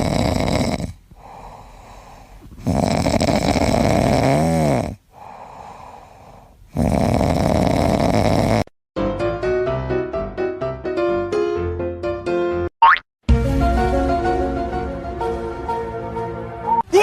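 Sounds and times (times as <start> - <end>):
quiet breathing: 0.0 - 3.9, 4.8 - 6.8
pet snoring loudly: 0.0 - 8.7.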